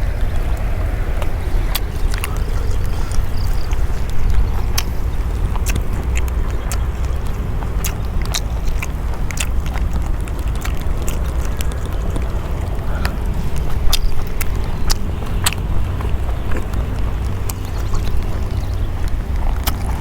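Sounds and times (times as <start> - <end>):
low rumble: 0.0 - 20.0
sharp crackles and ticks: 0.4 - 20.0.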